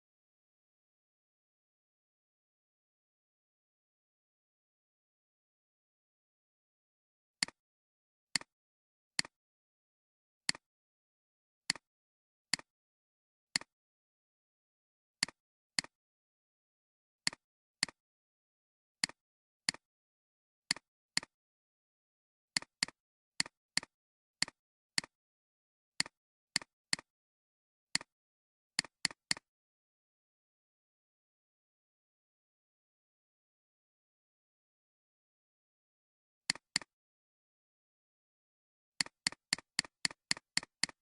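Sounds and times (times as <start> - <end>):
computer mouse clicks: 26.0 - 27.1, 28.0 - 28.2, 28.8 - 29.5, 36.5 - 36.9, 39.0 - 41.0.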